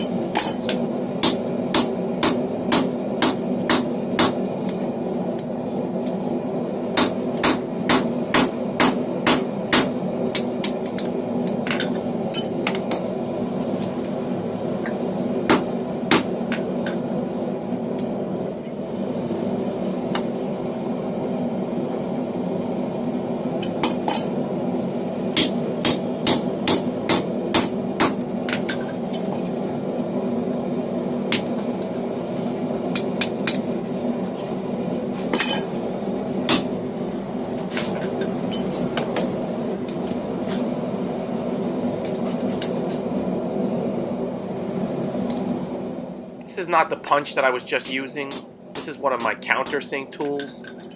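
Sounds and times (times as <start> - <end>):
hammer striking steel on anvil: 0.0 - 4.4, 7.0 - 13.0, 15.5 - 16.4, 25.4 - 29.4, 36.5 - 36.7
forge roaring: 0.0 - 49.2
steady background noise: 0.0 - 50.9.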